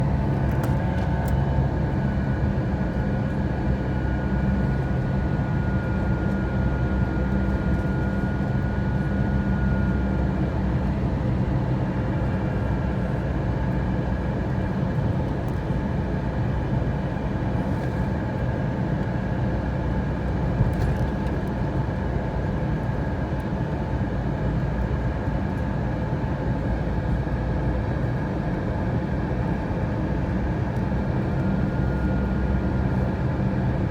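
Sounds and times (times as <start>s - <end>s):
airliner cabin drone: 0.0s - 33.9s.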